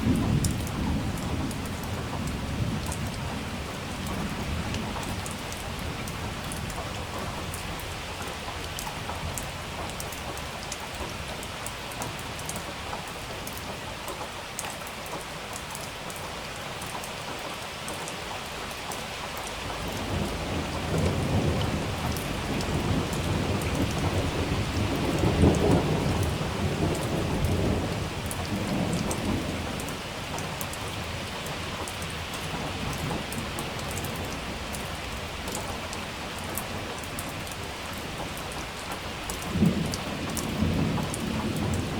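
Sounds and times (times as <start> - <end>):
rolling thunder: 0.0 - 9.5, 19.7 - 38.6, 39.3 - 41.9
steady rain with drop ticks: 0.0 - 41.9.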